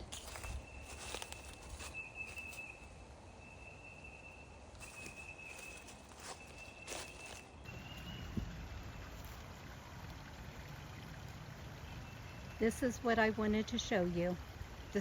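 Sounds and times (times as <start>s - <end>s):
footsteps on trail: 0.0s - 2.9s, 4.8s - 8.1s.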